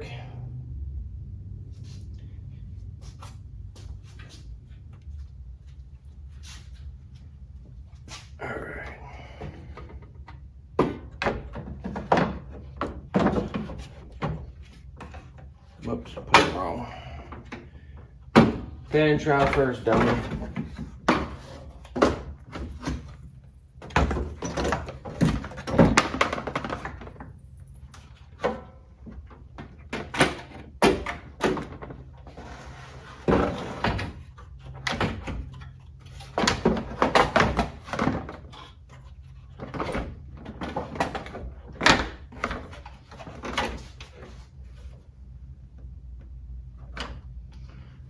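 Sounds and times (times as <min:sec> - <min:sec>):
steady low hum: 0:00.0 - 0:48.0
plastic parts knocking and clunking: 0:09.2 - 0:44.9.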